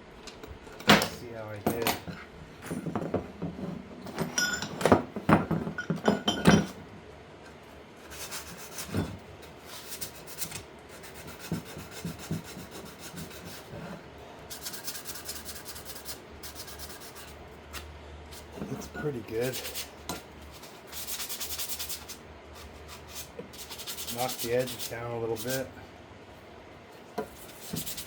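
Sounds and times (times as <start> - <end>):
rasping strokes: 18.4 - 25.7.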